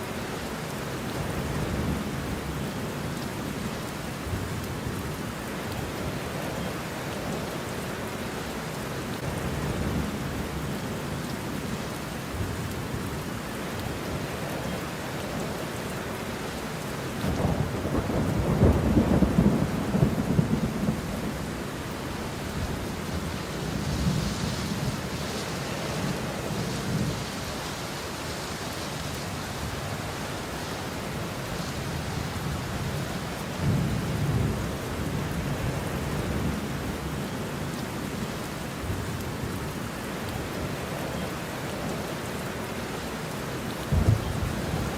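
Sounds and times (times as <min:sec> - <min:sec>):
steady rain: 0:00.0 - 0:44.9
rolling thunder: 0:17.2 - 0:21.5, 0:43.9 - 0:44.9.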